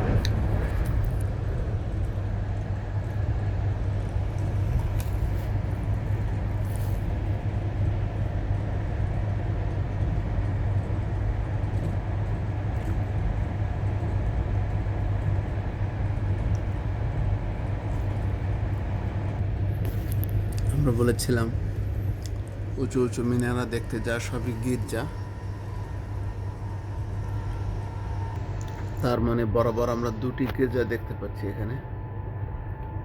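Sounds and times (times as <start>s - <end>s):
train rumbling inside carriage: 0.0s - 33.0s.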